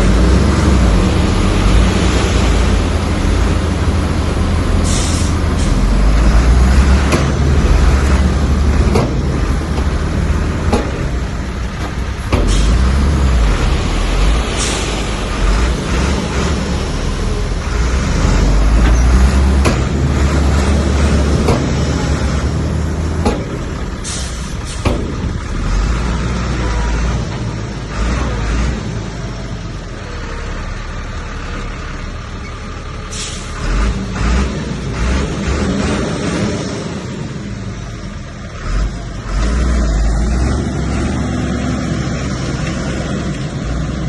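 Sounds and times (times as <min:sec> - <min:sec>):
diesel engine rumble: 0:00.0 - 0:44.0
short high hisses: 0:04.8 - 0:05.8
sharp metallic knocks: 0:07.0 - 0:10.0, 0:10.6 - 0:12.8, 0:18.8 - 0:20.2, 0:23.2 - 0:23.7.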